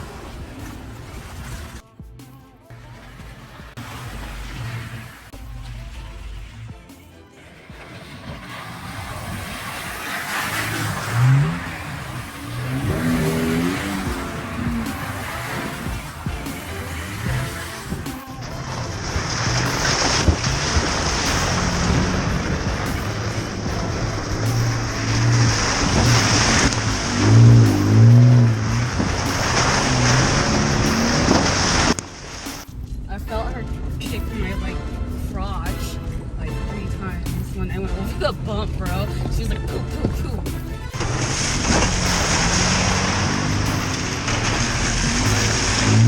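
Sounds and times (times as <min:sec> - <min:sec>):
tyre and road noise: 0:00.0 - 0:02.1, 0:02.7 - 0:46.0
truck engine revving: 0:02.7 - 0:46.0
knocks from rough road: 0:17.3 - 0:32.7, 0:40.0 - 0:46.0.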